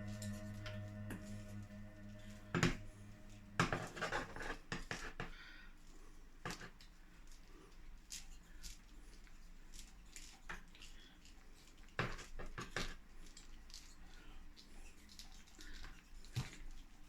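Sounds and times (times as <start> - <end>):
soft background music: 0.0 - 4.4.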